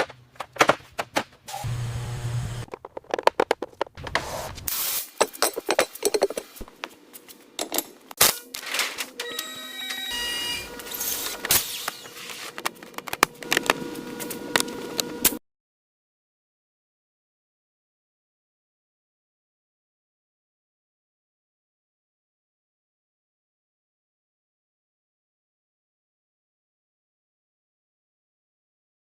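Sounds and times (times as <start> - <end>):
short high electronic beeps: 9.3 - 11.2.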